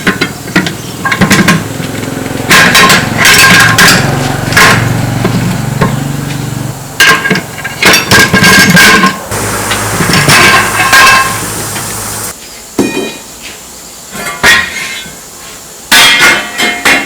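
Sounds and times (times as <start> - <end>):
steady low hum: 9.3 - 12.4.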